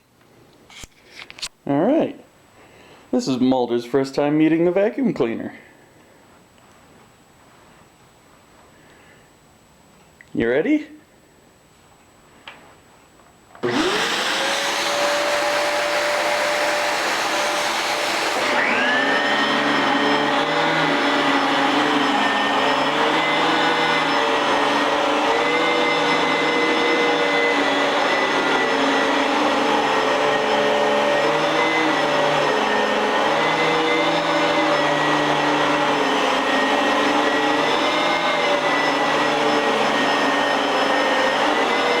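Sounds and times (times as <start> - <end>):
vacuum cleaner motor running: 13.6 - 42.0.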